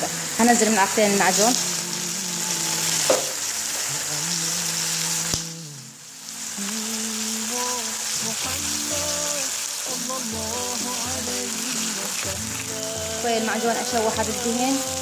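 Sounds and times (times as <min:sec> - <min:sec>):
tomato paste sizzling in oil: 0:00.0 - 0:15.0.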